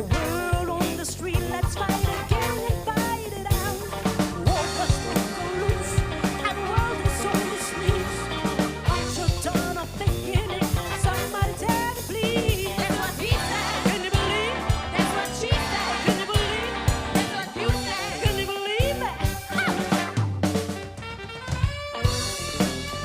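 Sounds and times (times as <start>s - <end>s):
person singing: 0.0s - 20.2s
funk band playing: 0.0s - 23.0s.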